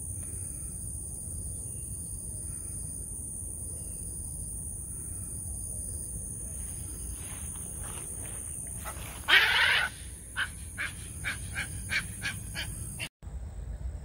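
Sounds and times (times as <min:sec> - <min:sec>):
harsh bird squawk: 0:08.8 - 0:13.1
waterbirds calling: 0:08.8 - 0:13.1.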